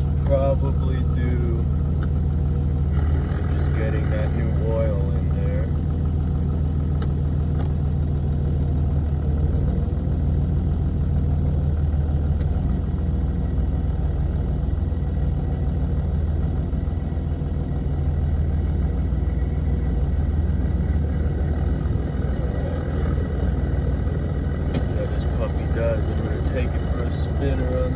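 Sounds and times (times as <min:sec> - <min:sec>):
diesel engine idling: 0:00.0 - 0:27.9.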